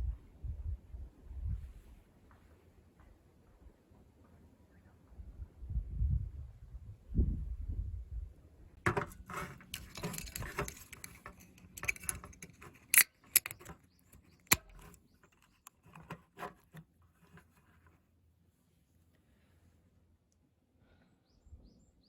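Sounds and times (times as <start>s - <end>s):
small hard objects clattering: 8.9s - 16.8s.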